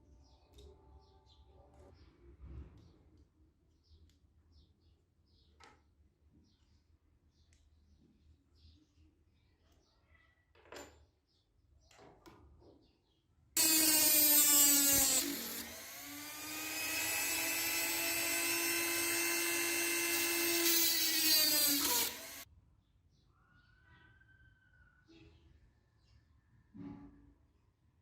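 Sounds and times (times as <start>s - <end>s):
power tool whining: 13.6s - 22.4s.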